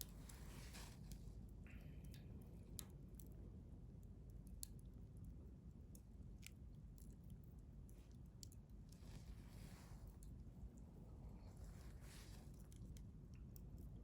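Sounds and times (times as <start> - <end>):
wood fire crackling: 0.0 - 1.5
low steady rumble: 0.0 - 14.0.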